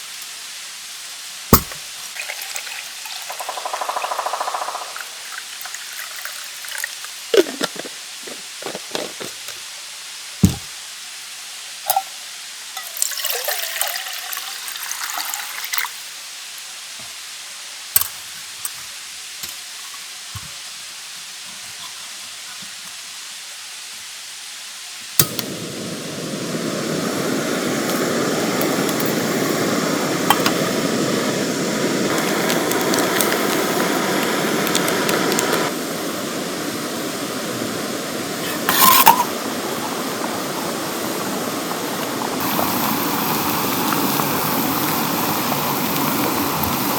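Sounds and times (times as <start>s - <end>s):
gas burner hissing: 0.0s - 10.8s, 25.0s - 46.9s
gas stove lighter click: 25.2s - 25.6s.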